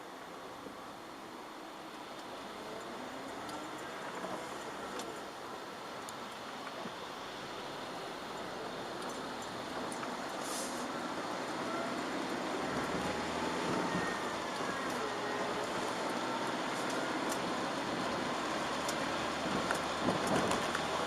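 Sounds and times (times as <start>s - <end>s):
car engine: 0.0s - 21.0s
tyre and road hiss: 0.0s - 21.0s
light ticks: 2.1s - 2.3s, 18.7s - 20.9s.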